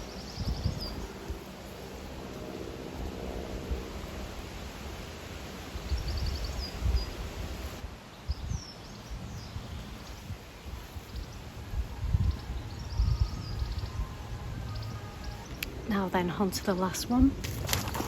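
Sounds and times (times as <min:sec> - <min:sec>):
low uneven rumble: 0:00.0 - 0:07.8
high bird chirps: 0:12.1 - 0:15.7.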